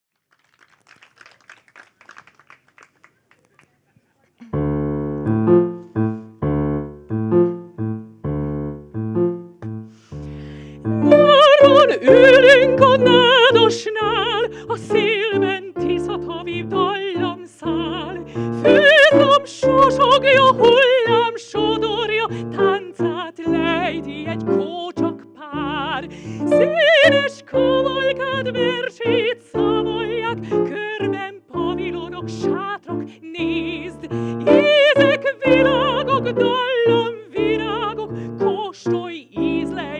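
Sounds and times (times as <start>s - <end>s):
piano accompaniment: 4.5s - 39.9s
woman singing opera: 10.9s - 39.9s.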